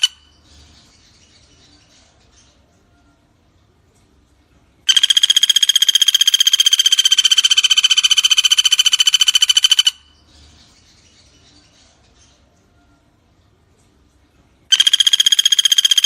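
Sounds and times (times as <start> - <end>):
woodpecker rattling call: 0.0 - 0.3, 4.9 - 10.2, 14.7 - 16.0.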